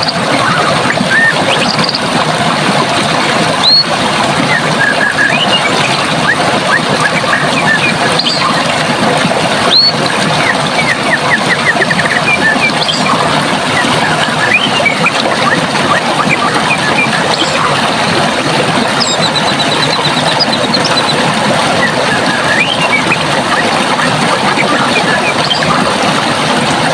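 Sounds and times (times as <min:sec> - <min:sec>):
small birds singing: 0:00.0 - 0:02.1, 0:04.5 - 0:08.7, 0:09.6 - 0:17.8, 0:24.4 - 0:25.9
running water: 0:00.0 - 0:26.9.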